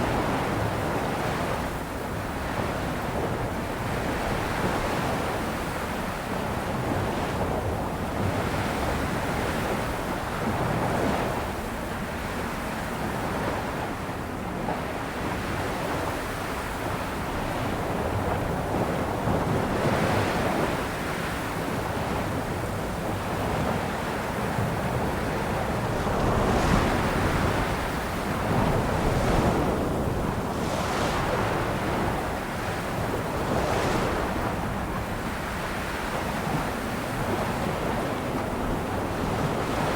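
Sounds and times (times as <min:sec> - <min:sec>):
wind on microphone: 0:16.9 - 0:39.9
ocean waves on shore: 0:19.1 - 0:39.9.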